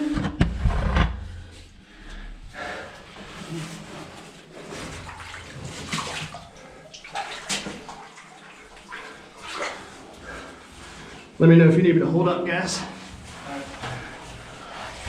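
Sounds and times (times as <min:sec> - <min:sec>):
water splashing from wading: 0:04.8 - 0:10.1.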